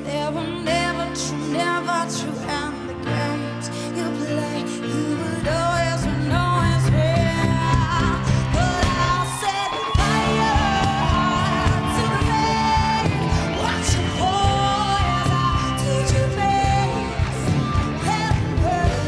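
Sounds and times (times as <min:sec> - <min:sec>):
woman singing pop-rock ballad: 0:00.0 - 0:19.0
live band playing: 0:04.2 - 0:19.0.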